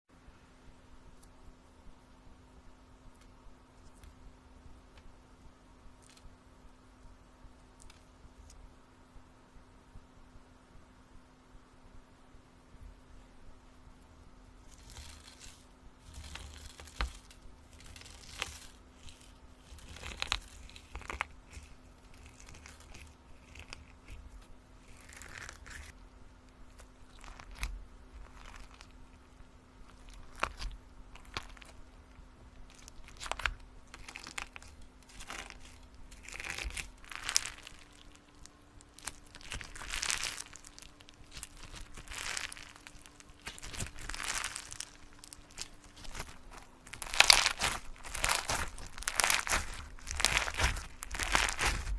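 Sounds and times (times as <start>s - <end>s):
faint steady hum: 0.1s - 51.9s
crinkling and tearing: 14.6s - 26.0s, 26.7s - 51.9s.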